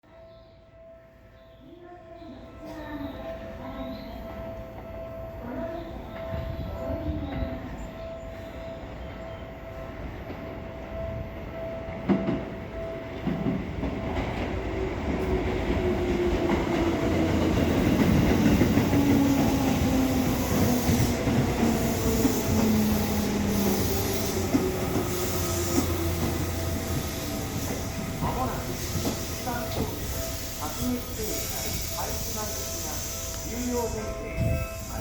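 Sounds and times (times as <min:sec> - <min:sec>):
train wheels clacking: 0:12.0 - 0:35.0.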